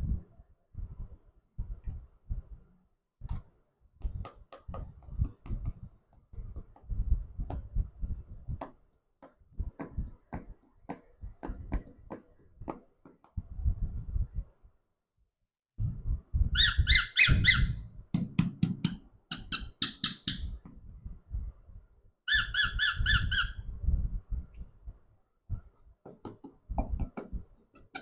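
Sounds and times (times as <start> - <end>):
toys clicking and tapping: 18.6 - 20.6, 26.3 - 28.0.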